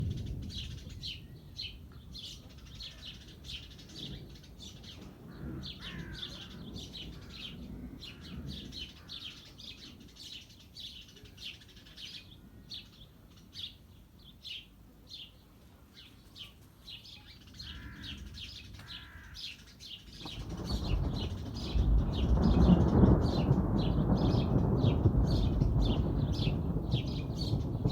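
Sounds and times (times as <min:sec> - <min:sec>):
small birds chirping: 0:00.0 - 0:27.9
rain falling: 0:20.2 - 0:27.9.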